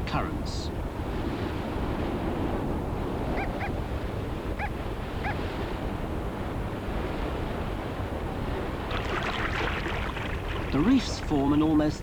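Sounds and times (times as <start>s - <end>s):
surf washing: 6.3s - 12.0s.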